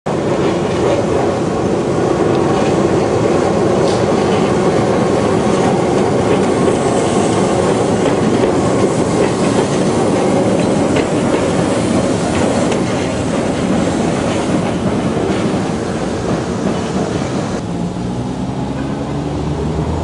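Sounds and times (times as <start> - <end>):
train wheels rumbling on rails: 0.1 - 20.0
wheels clicking over rail joints: 2.2 - 17.6.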